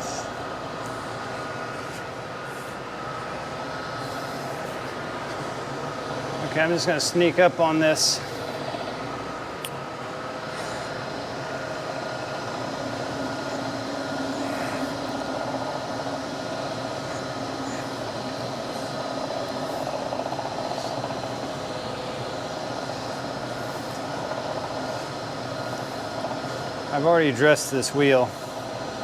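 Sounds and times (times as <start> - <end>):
surface grinder whine: 10.1 - 27.0.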